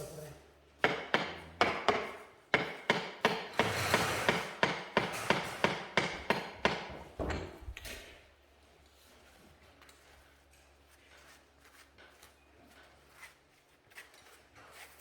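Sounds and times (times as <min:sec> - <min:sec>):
hammer tapping: 0:00.8 - 0:07.4.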